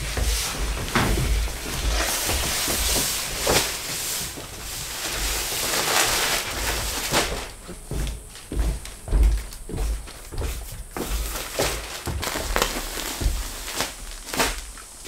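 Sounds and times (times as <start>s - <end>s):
low knocks and thuds: 0.0s - 3.6s, 7.4s - 11.0s
plastic wrapping rustling: 0.0s - 15.0s.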